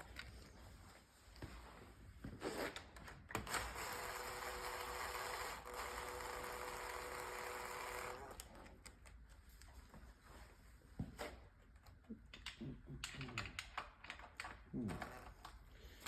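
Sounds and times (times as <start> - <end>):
electric power tool running: 3.7 - 8.4.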